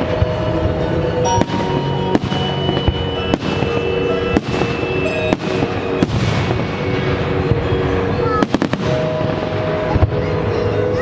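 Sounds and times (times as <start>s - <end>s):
fireworks bangs: 0.0s - 11.0s
fireworks hiss and rumble: 0.0s - 11.0s
music playing: 0.0s - 11.0s.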